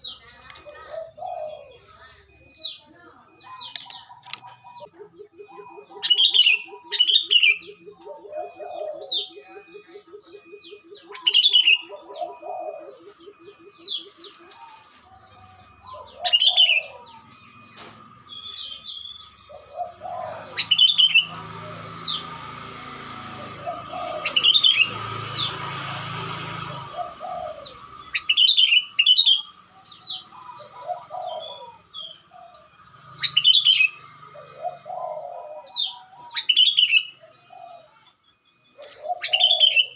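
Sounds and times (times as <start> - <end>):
bird chirping: 0.0 - 39.9
low pulsing trill: 15.2 - 36.0.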